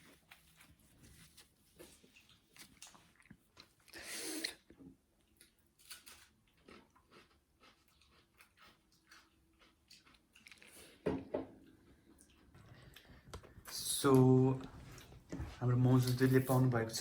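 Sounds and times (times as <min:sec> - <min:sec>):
chewing noodles: 0:00.0 - 0:11.0, 0:11.6 - 0:13.8.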